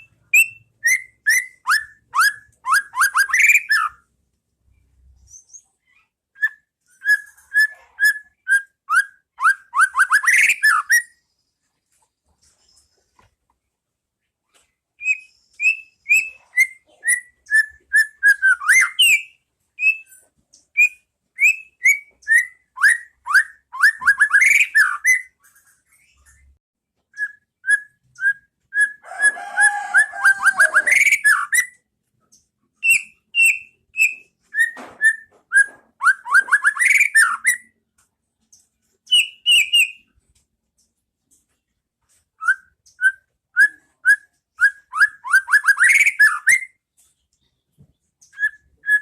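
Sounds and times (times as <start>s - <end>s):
bird singing whistled notes: 0.0s - 4.0s, 6.4s - 11.2s, 15.0s - 20.1s, 20.8s - 25.4s, 27.1s - 29.0s, 32.8s - 37.8s, 39.1s - 40.1s, 42.4s - 46.8s, 48.2s - 49.0s.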